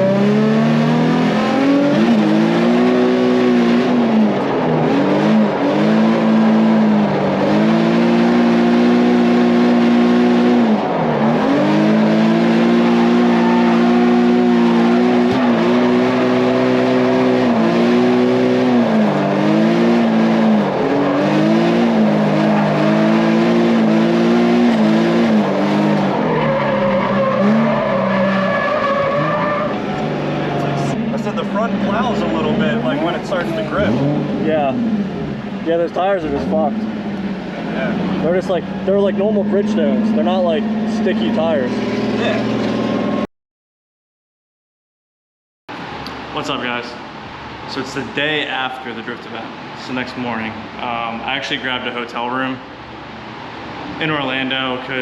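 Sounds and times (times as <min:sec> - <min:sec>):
car engine revving high: 0:00.0 - 0:43.2
tyres squealing: 0:11.4 - 0:17.7, 0:25.8 - 0:31.0.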